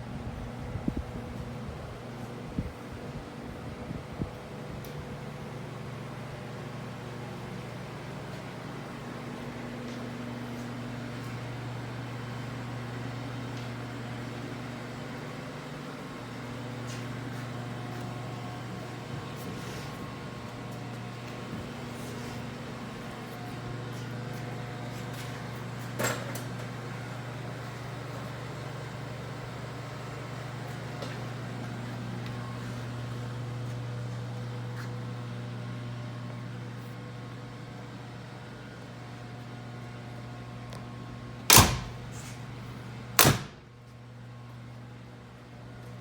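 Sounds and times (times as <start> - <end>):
low mechanical hum: 0.0 - 46.0
loud sharp knocks: 43.2 - 43.6.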